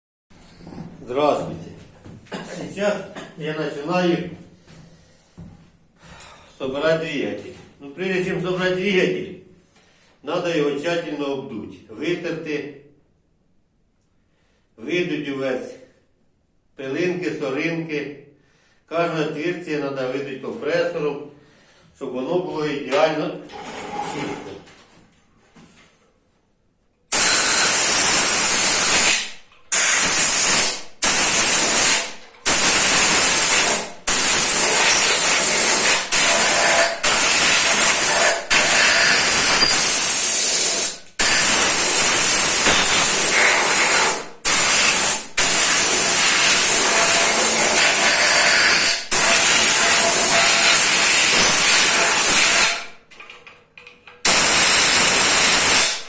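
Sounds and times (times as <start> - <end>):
compressed air hissing blasts: 27.1 - 52.8, 54.3 - 56.0.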